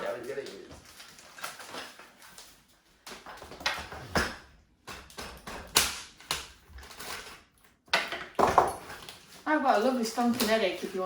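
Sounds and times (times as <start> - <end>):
hard objects knocking and clattering: 3.1 - 9.3.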